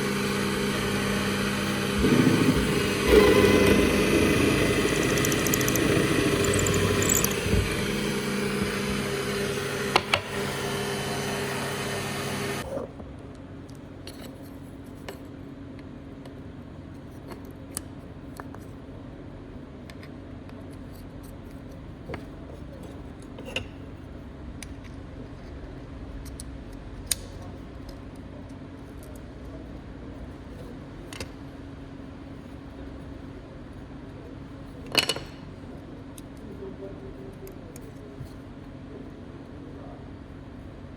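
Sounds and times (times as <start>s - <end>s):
power tool motor running: 0.0s - 12.6s.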